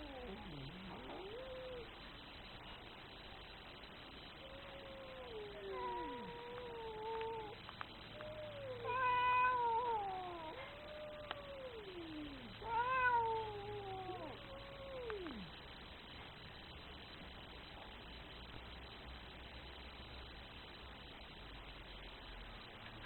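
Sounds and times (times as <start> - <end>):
cat yowling: 0.0 - 1.9, 4.5 - 15.5.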